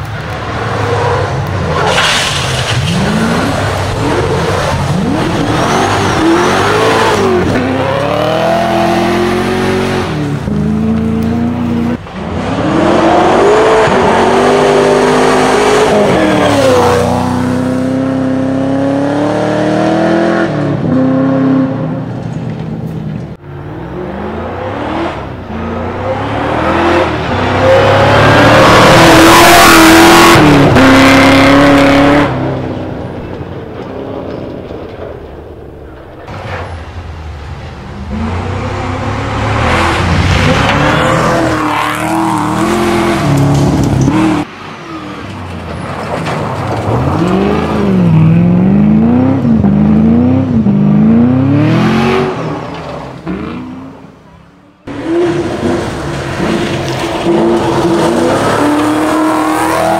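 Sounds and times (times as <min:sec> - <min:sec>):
rally car engine revving hard: 0:01.7 - 0:21.8, 0:23.8 - 0:32.6, 0:38.1 - 0:44.5, 0:46.9 - 0:53.7, 0:54.8 - 0:59.9.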